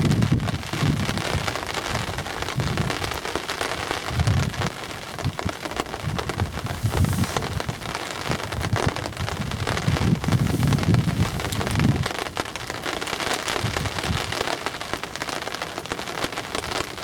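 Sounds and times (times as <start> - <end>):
rain falling: 0.0 - 17.0
low rumbles: 6.0 - 8.0, 9.3 - 12.1.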